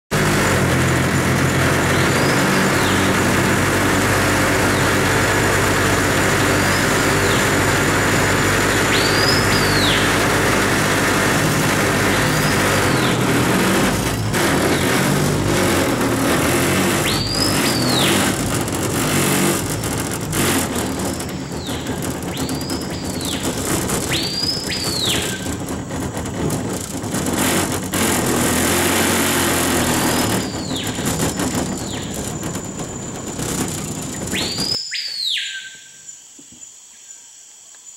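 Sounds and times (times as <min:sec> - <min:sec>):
boat motor droning: 0:00.1 - 0:34.8
bird calling loud whistles: 0:08.9 - 0:10.1, 0:24.0 - 0:25.5, 0:34.3 - 0:36.2.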